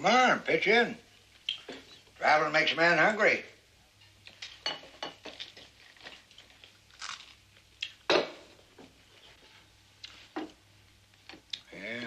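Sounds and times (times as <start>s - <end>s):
cutlery clinking on plates: 4.0s - 5.7s.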